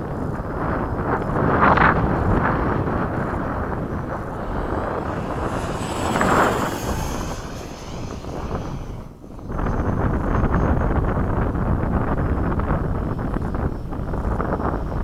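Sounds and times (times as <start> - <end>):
wind buffeting microphone: 0.0 - 15.0
model jet fan whine passing: 0.1 - 11.6.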